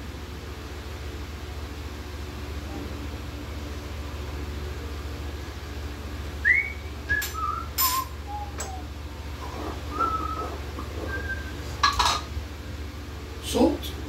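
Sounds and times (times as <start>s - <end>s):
steady low hum: 0.0s - 14.0s
short whistled notes: 6.4s - 8.9s, 9.9s - 11.6s.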